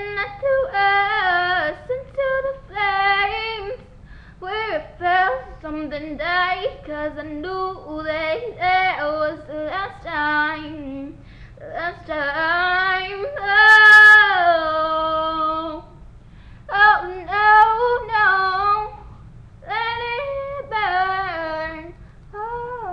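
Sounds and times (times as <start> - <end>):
woman singing unaccompanied: 0.0 - 16.0, 16.7 - 22.9
faint low hum: 0.0 - 22.9
singer breathing: 4.0 - 4.4, 11.2 - 11.6, 16.2 - 16.7.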